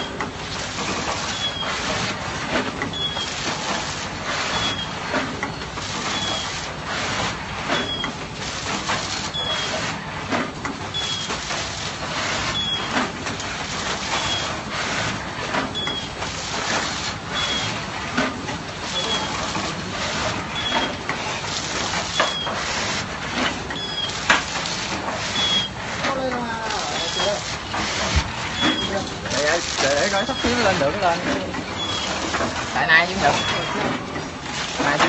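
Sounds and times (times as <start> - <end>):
machine clatter and hiss: 0.0 - 35.0.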